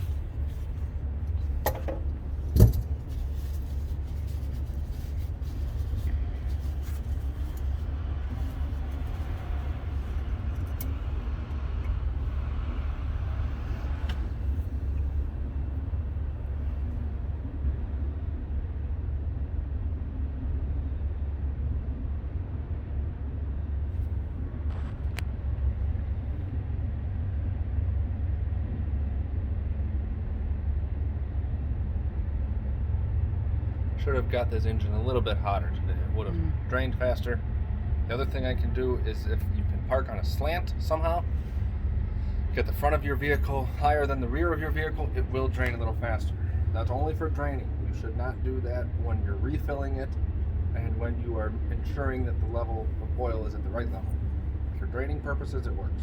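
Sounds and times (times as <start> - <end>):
light clicks and clatter: 0.0 - 12.0
low rumble: 0.0 - 56.0.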